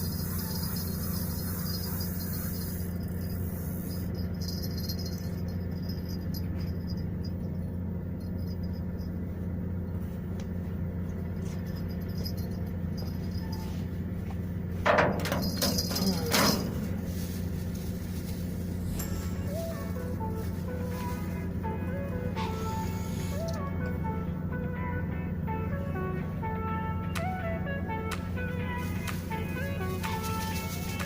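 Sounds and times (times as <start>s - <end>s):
boat motor humming: 0.0s - 31.0s
faint rattling: 14.7s - 19.8s.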